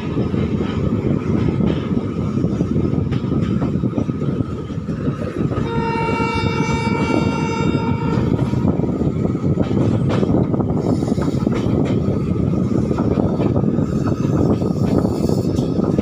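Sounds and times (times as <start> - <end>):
train wheels rumbling on rail: 0.0 - 16.0
locomotive horn blast: 5.6 - 8.8.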